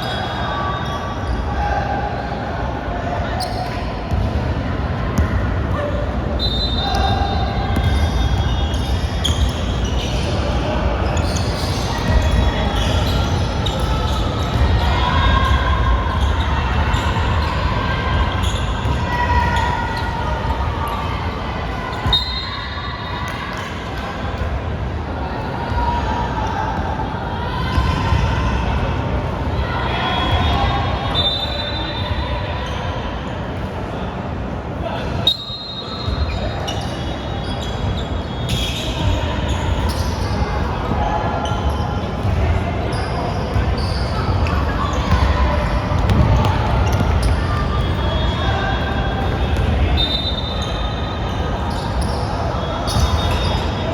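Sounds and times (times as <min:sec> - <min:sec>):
shoe squeaks: 0:00.0 - 0:01.6, 0:03.4 - 0:03.9, 0:05.8 - 0:14.6, 0:18.4 - 0:20.0, 0:35.2 - 0:40.4, 0:42.9 - 0:53.9
basketball bouncing on court: 0:06.9 - 0:10.1, 0:43.5 - 0:48.0, 0:49.3 - 0:49.9.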